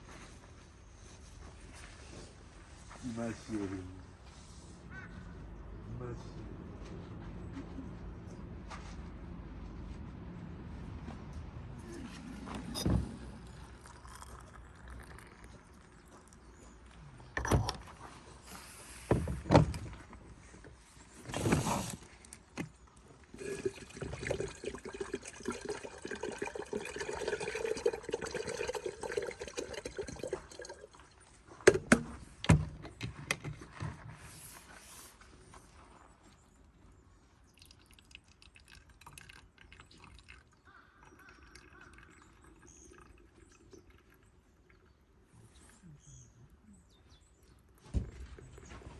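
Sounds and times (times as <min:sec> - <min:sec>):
cups and teapot clinking: 0:12.6 - 0:16.4, 0:23.4 - 0:31.0
liquid pouring: 0:13.0 - 0:16.5, 0:23.4 - 0:31.3, 0:37.5 - 0:44.8.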